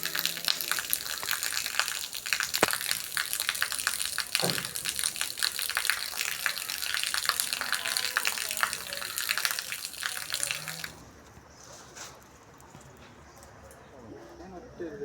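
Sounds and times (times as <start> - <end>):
water running and splashing: 0.0 - 11.0.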